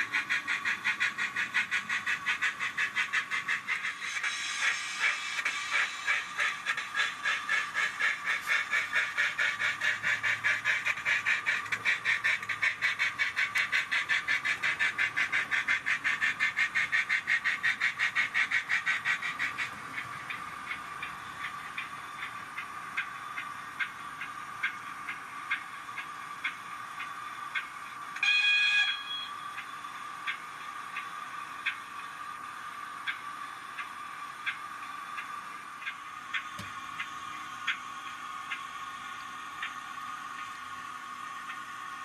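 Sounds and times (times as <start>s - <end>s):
steam engine exhaust chuffs: 0.0s - 28.2s.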